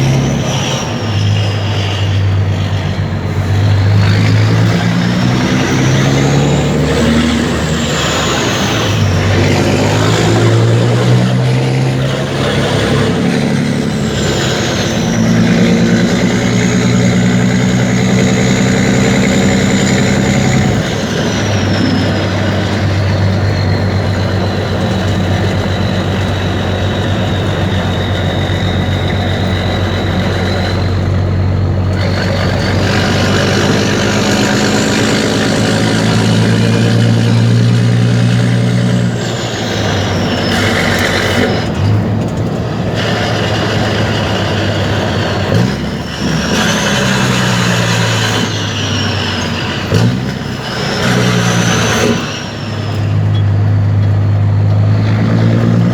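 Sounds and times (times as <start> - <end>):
diesel engine revving: 0.0 - 55.9
high whistle: 18.0 - 31.2.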